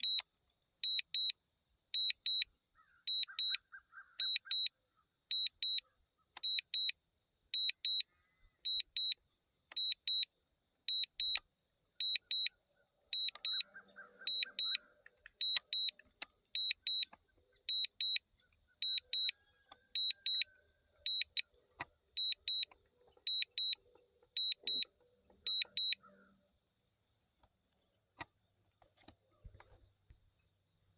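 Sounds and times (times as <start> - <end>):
high electronic warning beeps: 0.0 - 1.4, 10.9 - 11.4, 12.0 - 12.6, 13.2 - 26.3.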